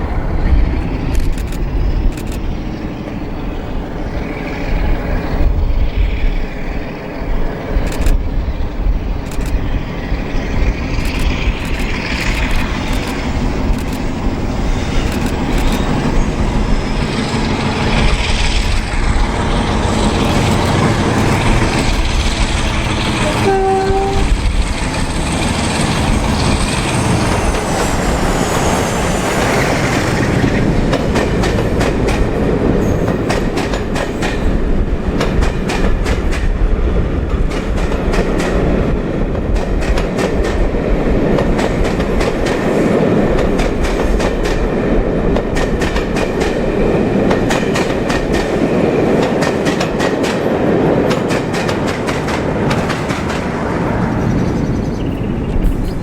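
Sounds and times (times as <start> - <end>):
diesel locomotives rumbling: 0.0 - 56.0
two-tone train horn: 23.1 - 24.6.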